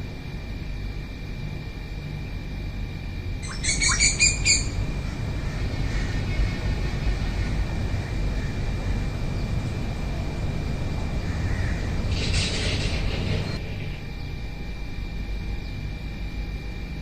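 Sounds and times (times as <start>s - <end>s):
bird ringing notes: 3.4s - 5.1s.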